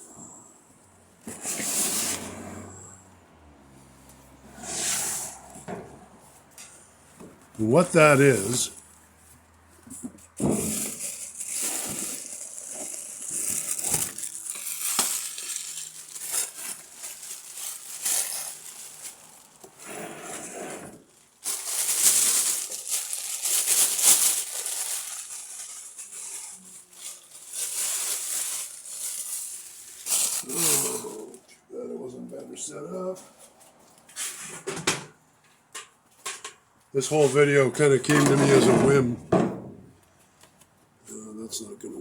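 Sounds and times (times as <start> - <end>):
packaging crinkling and rustling: 10.5 - 19.8, 20.9 - 31.3.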